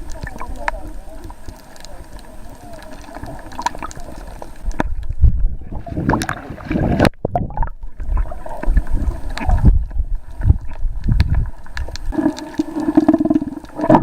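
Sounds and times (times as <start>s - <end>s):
water churning and bubbling: 0.0s - 14.0s
clicks in water: 1.5s - 5.1s, 6.0s - 7.8s.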